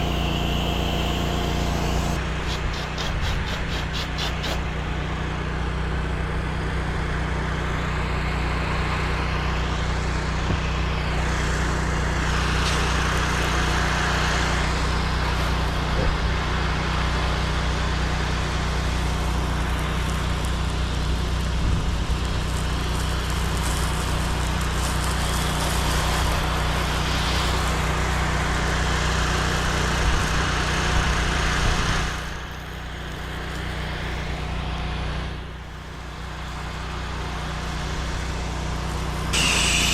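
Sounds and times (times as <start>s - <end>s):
water spray hissing: 0.0s - 4.7s, 22.2s - 29.8s, 39.0s - 39.9s
pressure washer engine running: 0.0s - 39.9s.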